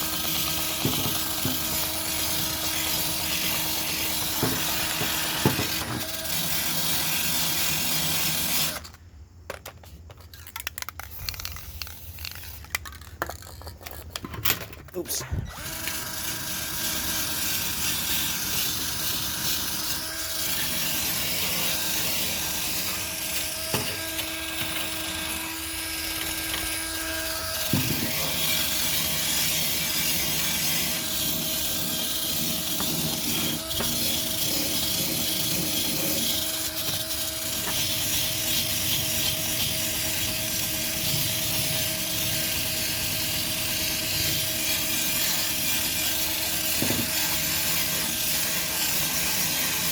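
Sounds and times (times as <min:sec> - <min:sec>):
electric drill motor whine: 0:00.0 - 0:09.0, 0:15.3 - 0:49.9
brush scraping: 0:26.0 - 0:49.9.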